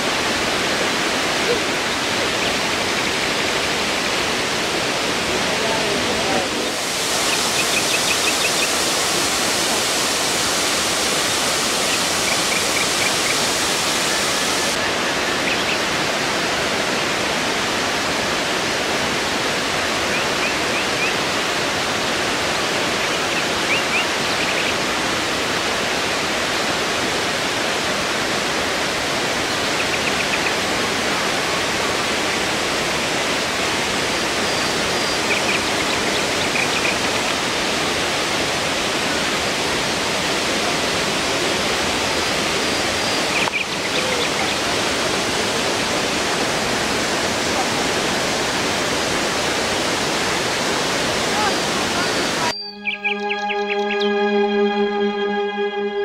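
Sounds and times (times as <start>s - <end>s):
waterfall rushing: 0.0s - 53.9s
faint high chirps: 52.4s - 54.7s.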